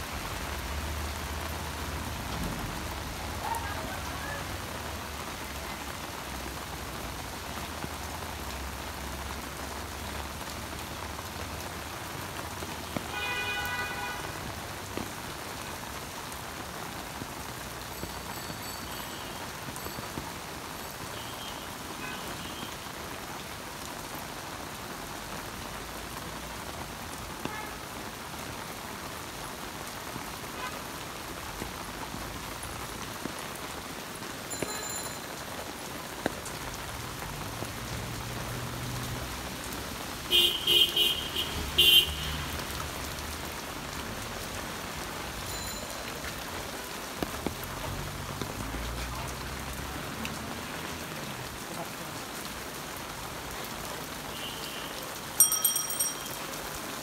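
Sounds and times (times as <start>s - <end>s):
rain on a wet road: 0.0s - 57.0s
traffic passing: 36.2s - 57.0s.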